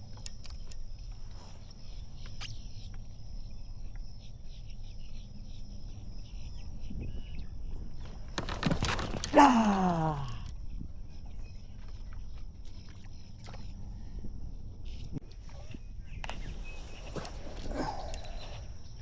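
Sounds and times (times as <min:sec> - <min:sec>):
constant low rumble: 0:00.0 - 0:19.0
insects buzzing: 0:14.8 - 0:19.0.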